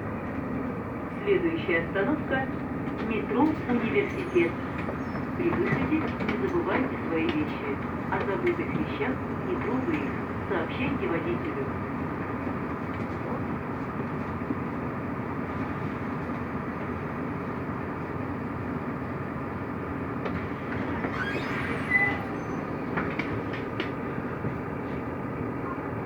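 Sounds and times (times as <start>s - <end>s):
bus engine drone: 0.0s - 26.0s
rattling with squeak: 21.0s - 22.8s.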